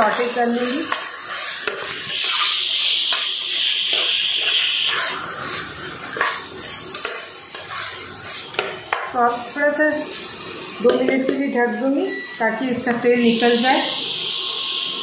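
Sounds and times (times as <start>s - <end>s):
metal spatula scraping pot: 0.0s - 3.2s, 3.9s - 10.1s
masala sizzling in oil: 0.0s - 15.0s.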